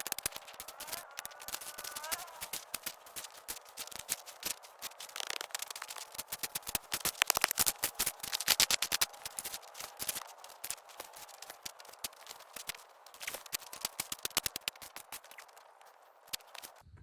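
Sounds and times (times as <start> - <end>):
shovel scraping dry dirt: 0.0 - 16.8.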